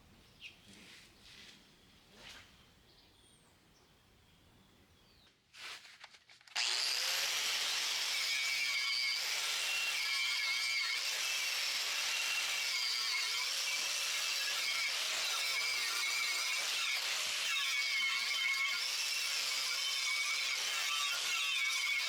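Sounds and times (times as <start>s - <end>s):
angle grinder with wire wheel: 6.6s - 22.0s.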